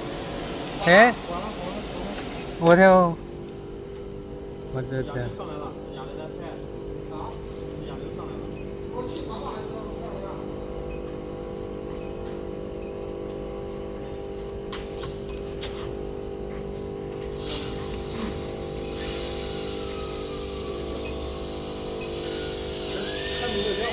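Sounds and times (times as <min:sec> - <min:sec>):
steady machine hum: 0:00.0 - 0:23.9
hiss: 0:17.4 - 0:23.9.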